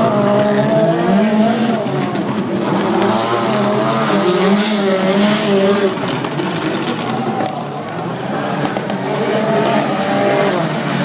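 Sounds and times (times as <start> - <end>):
race car engines running hard: 0.0 - 11.0.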